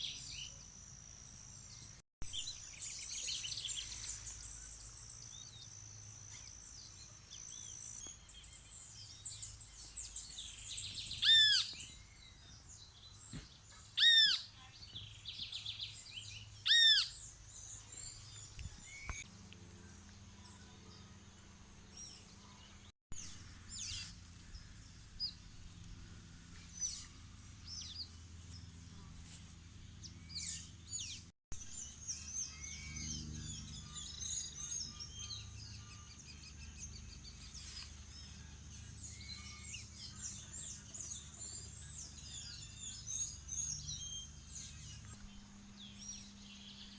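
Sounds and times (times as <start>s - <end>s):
bird chirps and trills: 1.4s - 19.2s, 30.2s - 46.9s.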